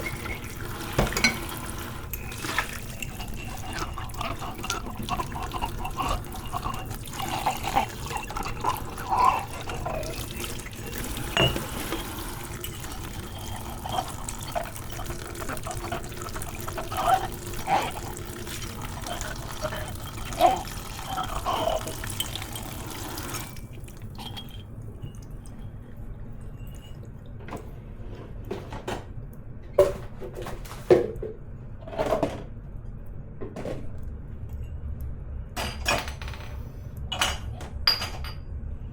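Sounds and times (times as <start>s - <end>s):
tap running into a sink: 0.0s - 3.0s, 10.1s - 15.6s
dishes clinking: 0.0s - 25.3s, 35.6s - 38.5s.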